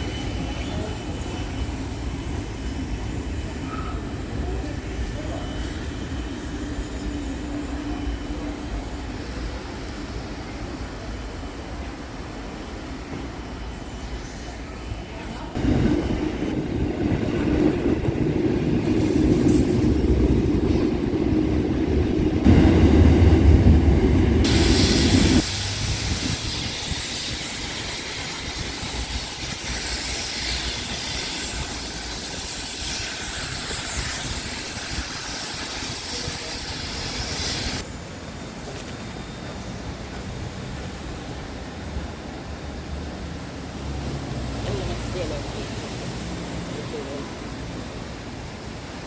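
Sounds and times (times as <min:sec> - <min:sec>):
train rumble: 0:00.0 - 0:49.0
steady hiss: 0:24.4 - 0:39.0.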